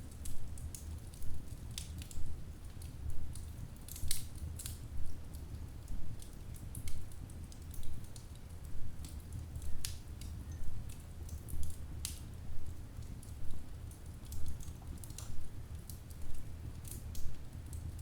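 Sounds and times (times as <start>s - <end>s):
log fire crackling and popping: 0.0s - 18.0s
low rumble of flames: 0.0s - 18.0s.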